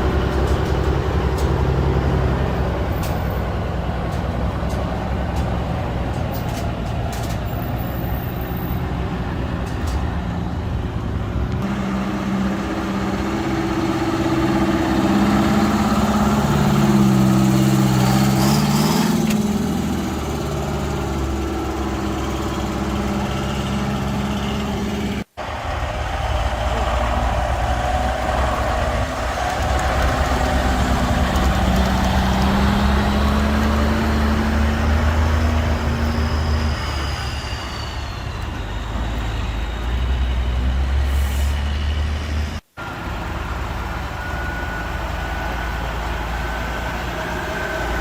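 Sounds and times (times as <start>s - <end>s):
heavy truck engine revving: 0.0s - 48.0s
short air hiss: 41.0s - 41.7s.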